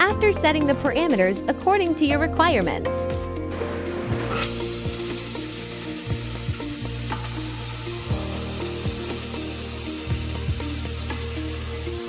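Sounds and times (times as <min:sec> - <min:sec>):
background music with low notes: 0:00.0 - 0:12.0
laser welder hissing and crackling: 0:03.6 - 0:12.0.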